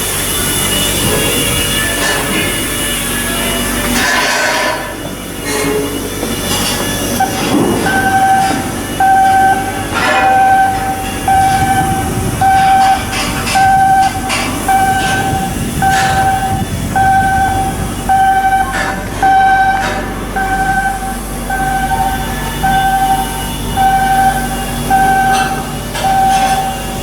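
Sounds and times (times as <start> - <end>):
work noise: 0.0 - 27.0
electronic warning alarm beeping: 4.9 - 27.0
metal knocks: 7.2 - 23.2, 23.8 - 27.0.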